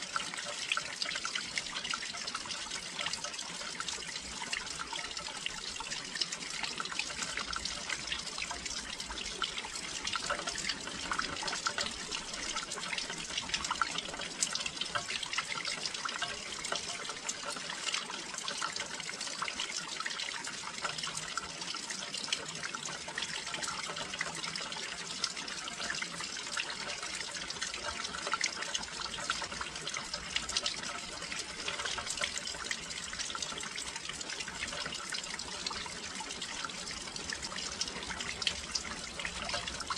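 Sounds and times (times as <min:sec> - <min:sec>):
rain pattering on windowsill: 0:00.0 - 0:39.9.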